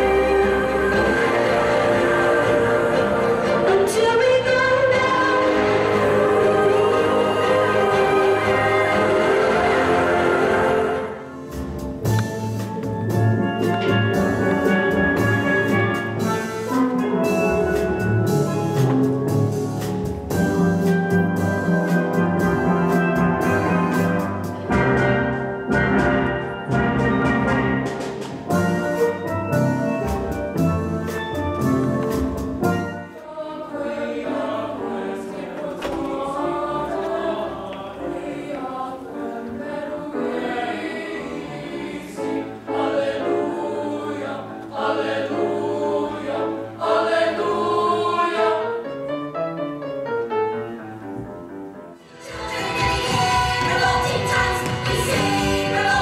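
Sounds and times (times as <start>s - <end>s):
boys' choir singing: 0.0s - 11.5s, 33.1s - 48.9s, 52.0s - 56.0s
steel pan band with drums: 7.0s - 33.3s.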